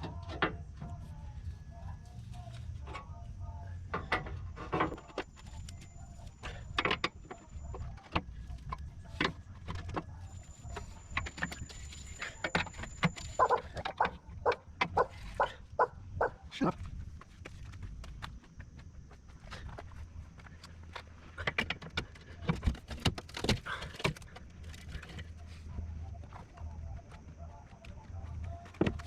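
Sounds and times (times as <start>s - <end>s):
hand tools clicking and knocking metal: 4.0s - 15.6s.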